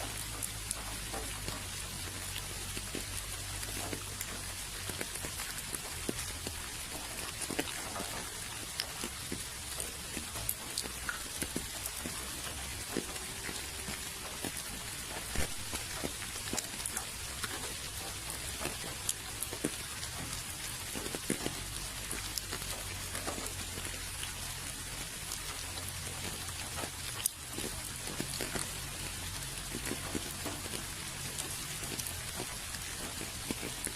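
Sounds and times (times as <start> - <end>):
rain hissing: 0.0 - 33.9.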